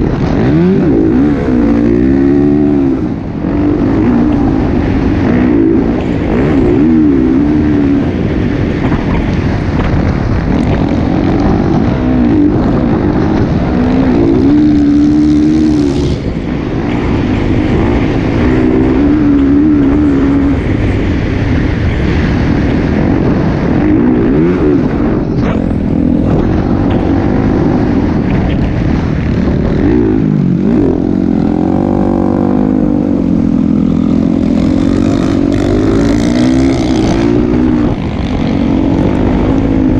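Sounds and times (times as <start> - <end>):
dense low rumble: 0.0 - 39.9
motocross bike engine revving: 0.0 - 39.9.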